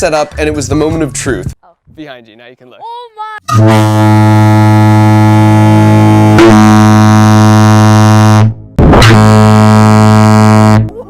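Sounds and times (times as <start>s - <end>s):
air horn blasting low note: 3.5s - 10.9s.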